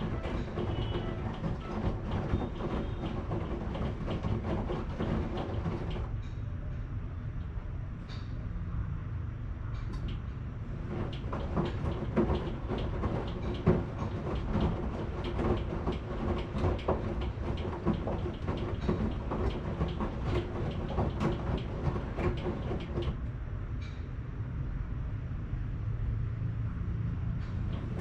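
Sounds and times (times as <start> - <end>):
drum clicks and knocks: 0.0 - 6.1, 9.9 - 23.2, 27.6 - 28.0
washing machine rumbling: 0.0 - 6.2, 9.9 - 23.3, 27.4 - 28.0.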